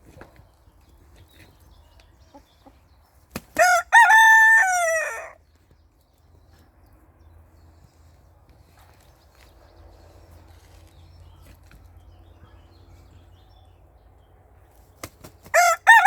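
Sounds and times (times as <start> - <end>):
rooster crowing: 3.6 - 5.4, 15.5 - 16.0.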